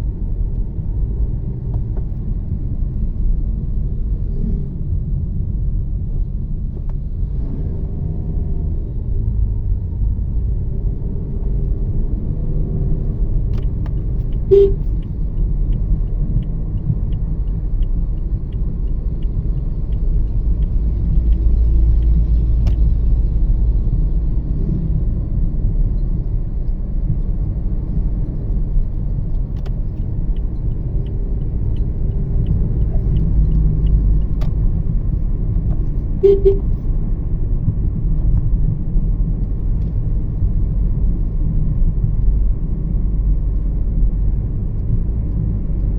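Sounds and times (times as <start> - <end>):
car road and engine rumble: 0.0 - 45.9
light evenly spaced ticks: 13.5 - 22.4, 29.1 - 34.6.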